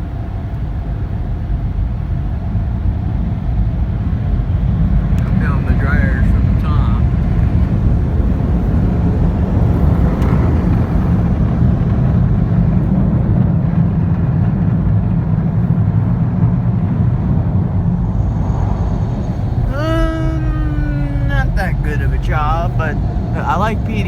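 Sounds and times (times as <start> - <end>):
car wash air dryers blowing: 17.2 - 24.0.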